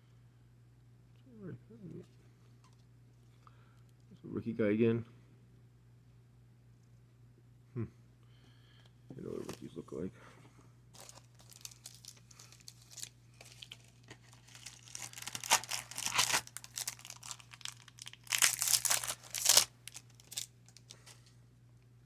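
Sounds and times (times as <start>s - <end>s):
cards shuffling: 11.0s - 21.3s
foil wrapper crinkling: 11.0s - 21.3s.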